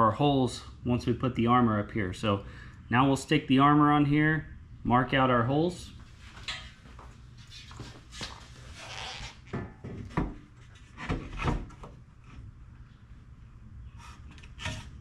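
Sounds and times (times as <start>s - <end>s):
rubbing scrapes: 7.4s - 9.5s.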